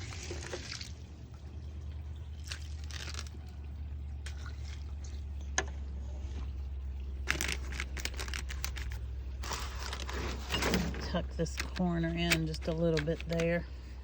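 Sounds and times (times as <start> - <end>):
wet pouring: 0.0 - 11.6
low hum: 0.0 - 14.0
ladle scraping: 7.2 - 14.0.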